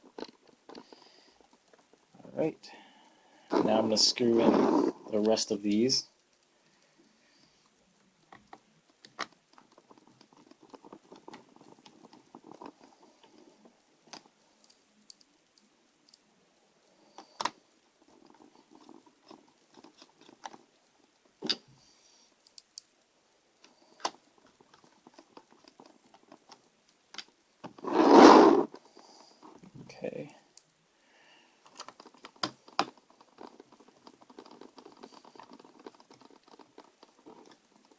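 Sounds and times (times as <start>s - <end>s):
screwdriver scratchy turning: 3.5s - 5.2s, 27.8s - 28.7s.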